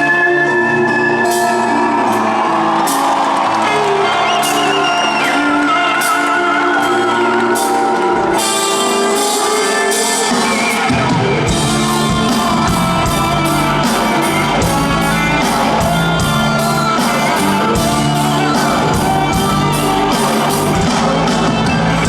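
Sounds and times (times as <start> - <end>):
live band playing loud music: 0.0 - 22.0
drum beat: 10.0 - 22.0.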